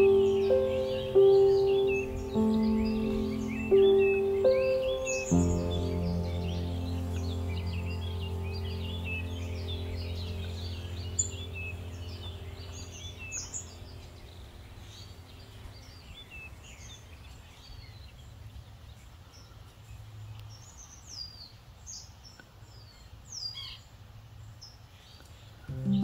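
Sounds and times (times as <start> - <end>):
background music low notes: 0.0 - 16.0, 25.7 - 26.0
songbirds chirping and singing: 0.0 - 26.0.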